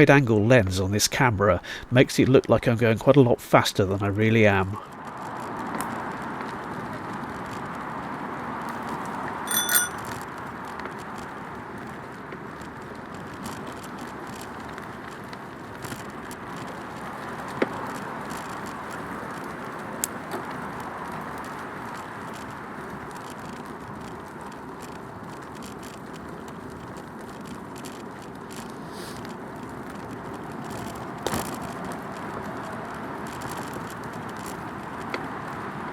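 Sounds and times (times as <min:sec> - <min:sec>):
bicycle tyres rolling: 0:00.0 - 0:35.9
bicycle bell ringing: 0:09.5 - 0:10.2.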